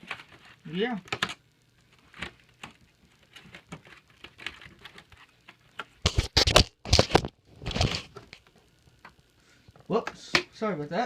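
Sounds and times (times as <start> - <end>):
phone handling rustles and clicks: 1.1 - 8.4
phone dropped knocks and clatter: 6.1 - 8.0.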